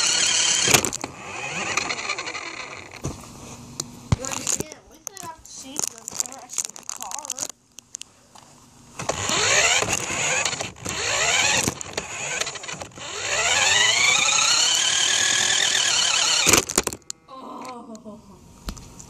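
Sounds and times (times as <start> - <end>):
electric motor whining: 0.0 - 3.0, 9.0 - 17.3.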